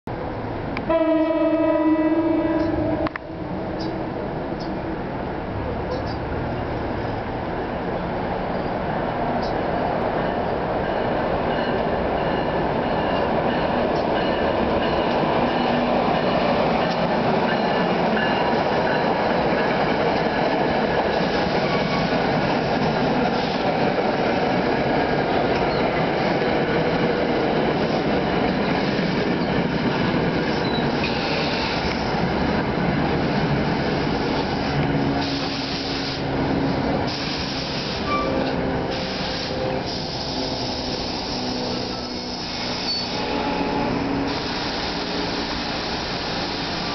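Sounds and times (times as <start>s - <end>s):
train wheels rumbling on rail: 0.1s - 46.9s
short bursts of high hiss: 37.1s - 38.1s, 44.2s - 46.9s.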